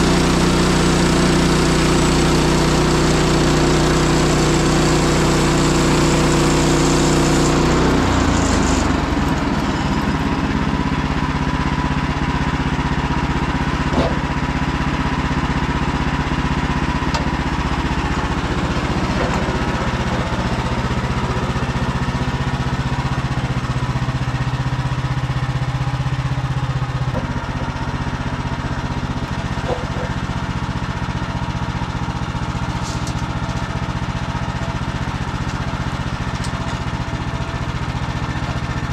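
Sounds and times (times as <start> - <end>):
band blade sawing log: 0.0 - 10.2, 18.0 - 21.8, 29.2 - 30.3
gas engine running: 0.0 - 38.9.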